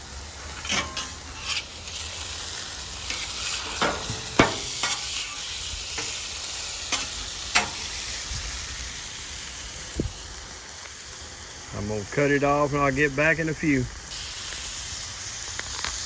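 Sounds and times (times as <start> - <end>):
meat sizzling on a griddle: 0.0 - 16.0
metal spatula clicking and scraping: 0.5 - 2.2.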